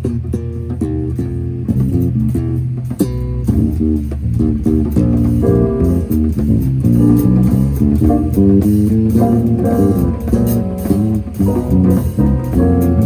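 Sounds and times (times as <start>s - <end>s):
bass guitar: 0.0s - 13.0s
guitar: 0.0s - 13.0s
live band playing: 3.5s - 13.0s.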